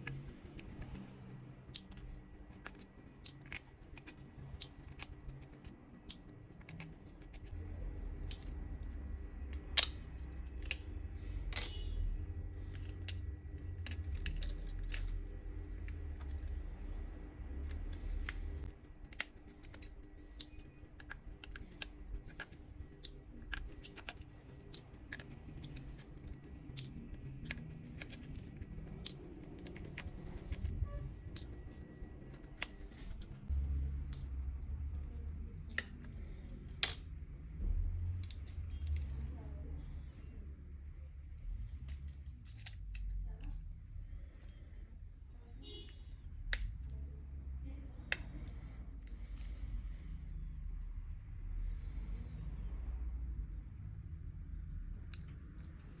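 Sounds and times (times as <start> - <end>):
hand tools clicking on plastic: 17.6 - 34.3.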